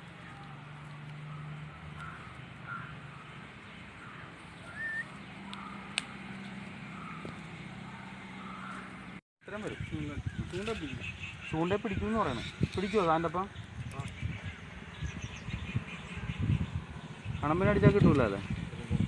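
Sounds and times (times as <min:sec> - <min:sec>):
bird chirps: 0:00.2 - 0:09.0.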